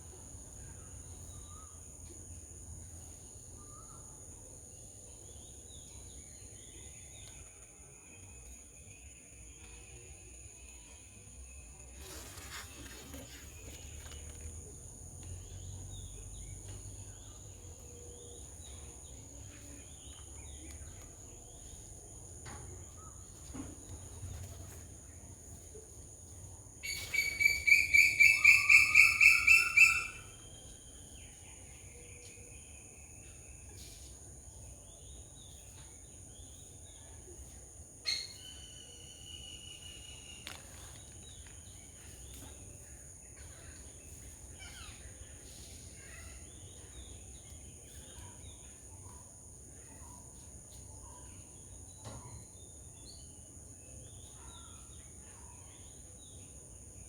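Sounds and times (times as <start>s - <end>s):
faint bird calls: 26.8s - 30.5s
sharp rapidly repeated calls: 27.2s - 30.2s.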